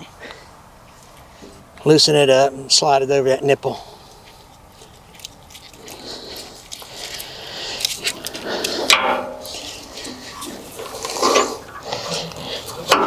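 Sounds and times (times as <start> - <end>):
metallic clicks and scrapes: 4.8 - 13.0.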